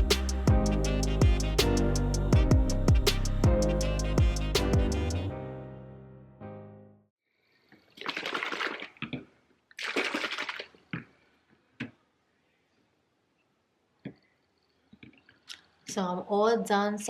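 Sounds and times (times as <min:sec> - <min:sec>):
liquid pouring: 0:07.8 - 0:11.0.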